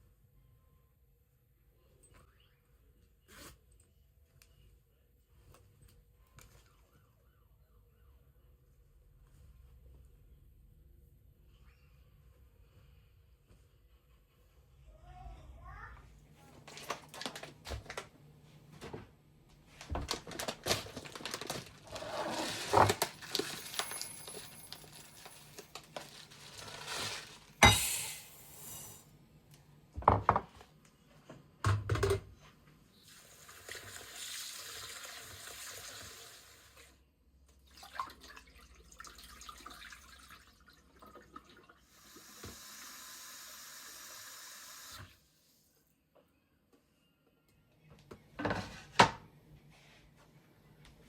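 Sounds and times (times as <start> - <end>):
dishes and pans clattering: 26.8 - 28.8.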